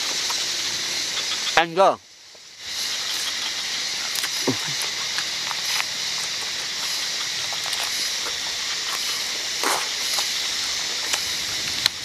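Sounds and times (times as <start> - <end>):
steady hiss: 0.0 - 12.0
chewing clicks and smacks: 4.1 - 10.3.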